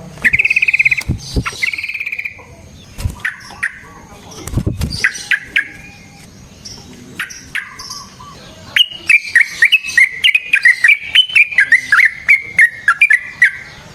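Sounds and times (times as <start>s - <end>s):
bulbul singing: 0.0s - 2.9s.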